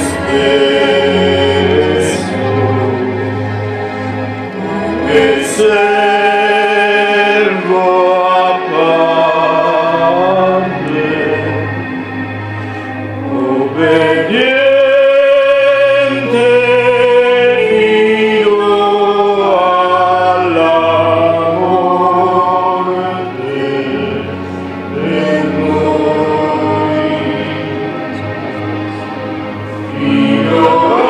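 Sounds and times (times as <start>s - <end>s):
choir singing long notes: 0.0s - 31.0s
low sustained tone: 7.7s - 15.5s.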